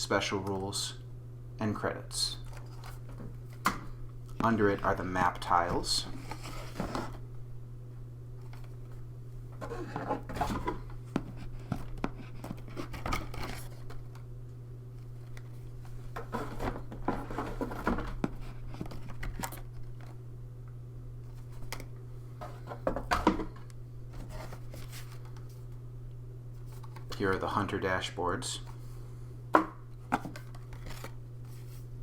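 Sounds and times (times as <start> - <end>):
steady low hum: 0.0 - 32.0
cardboard pieces rustling and scraping: 4.4 - 7.2, 9.6 - 14.2, 15.1 - 20.2, 22.4 - 25.7, 30.0 - 31.9.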